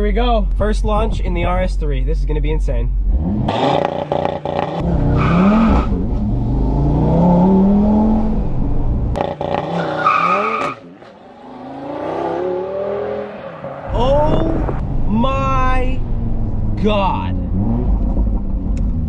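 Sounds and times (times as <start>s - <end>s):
car engine at full throttle: 2.9s - 19.0s
tyre squeals: 9.5s - 11.2s.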